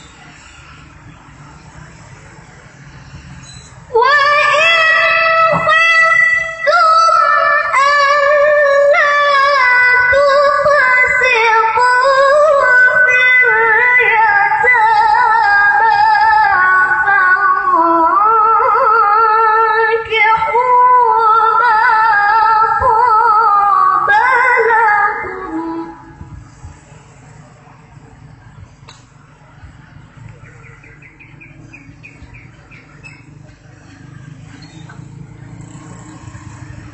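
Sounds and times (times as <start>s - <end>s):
person reciting melodically: 3.9s - 26.3s.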